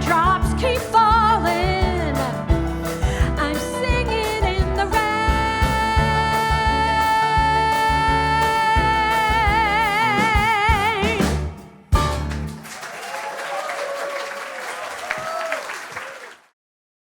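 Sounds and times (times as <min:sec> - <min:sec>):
woman singing: 0:00.0 - 0:11.6
band playing bass and drums: 0:00.0 - 0:12.7.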